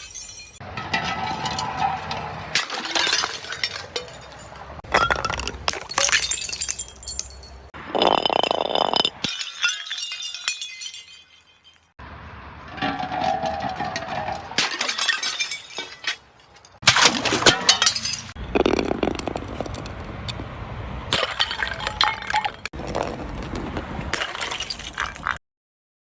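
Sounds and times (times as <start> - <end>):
glass bottles crushing: 0.0 - 12.0, 12.7 - 19.9, 21.1 - 22.8.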